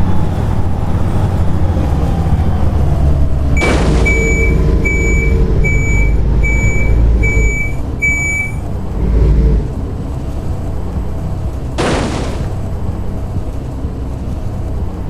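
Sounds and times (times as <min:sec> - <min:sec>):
diesel bus engine rumble: 0:00.0 - 0:15.0
short high warning beeps: 0:03.6 - 0:08.6.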